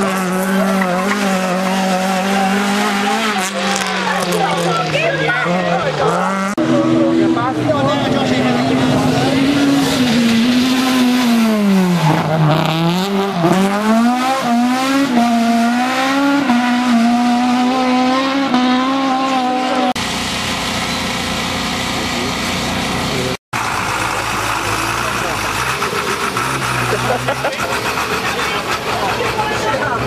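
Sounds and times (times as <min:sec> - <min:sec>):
rally car engine revving: 0:00.0 - 0:30.0.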